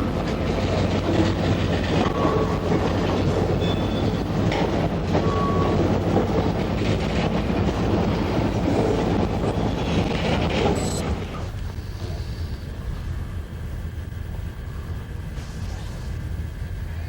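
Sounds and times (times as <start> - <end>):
freight cars rumbling on rails: 0.0 - 17.0
thin wheel squeals: 3.6 - 4.2.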